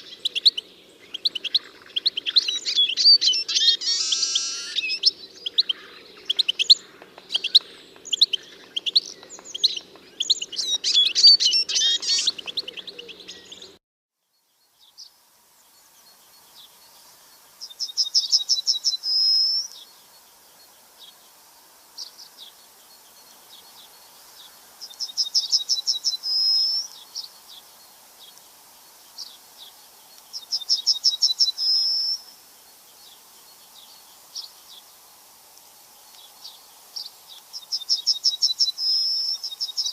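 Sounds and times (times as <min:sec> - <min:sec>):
bird singing a fast trill: 0:00.0 - 0:21.2, 0:24.8 - 0:27.8, 0:29.1 - 0:32.4, 0:36.5 - 0:39.9
songbirds chirping: 0:00.0 - 0:39.9.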